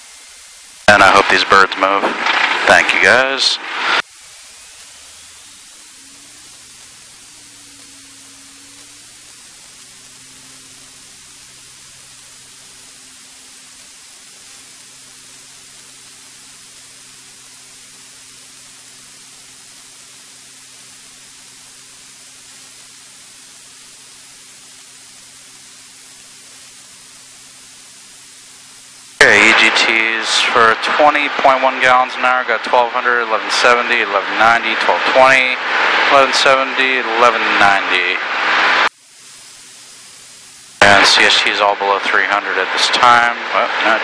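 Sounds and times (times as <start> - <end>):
aircraft piston engine humming: 0.0 - 31.6
headset intercom hiss: 0.8 - 44.0.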